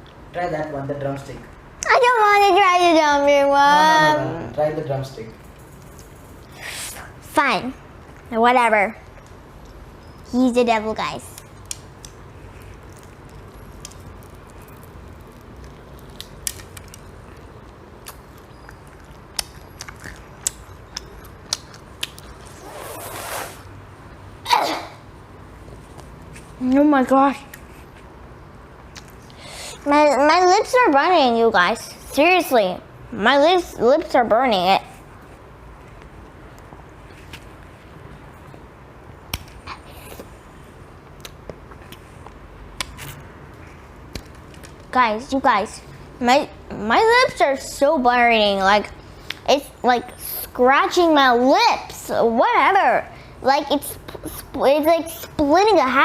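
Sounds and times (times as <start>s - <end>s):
brief hissing: 22.6s - 23.7s.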